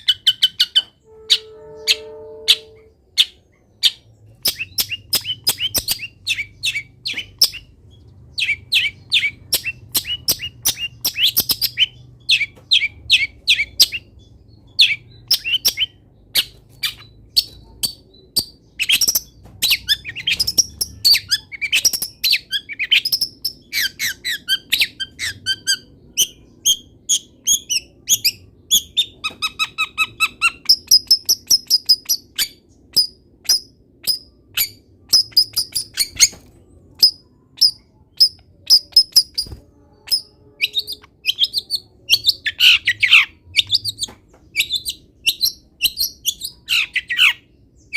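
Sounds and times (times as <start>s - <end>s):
shrike singing: 1.0s - 6.9s
buzzy bird phrase: 1.1s - 3.1s.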